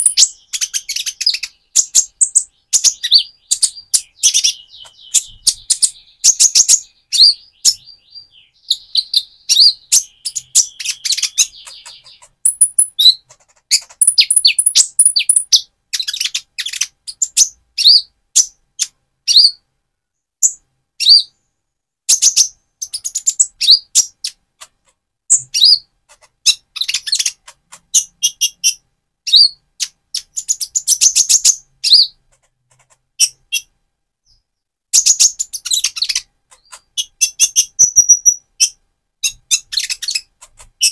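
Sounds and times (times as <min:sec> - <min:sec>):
bird singing high chirps: 0:00.0 - 0:19.6, 0:25.3 - 0:32.2, 0:35.0 - 0:40.9
bird buzzy trills: 0:09.6 - 0:15.6.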